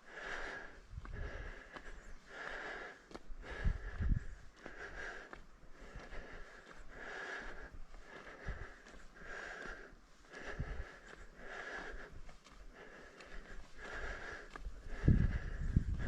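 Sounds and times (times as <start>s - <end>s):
person breathing rhythmically: 0.0s - 16.0s.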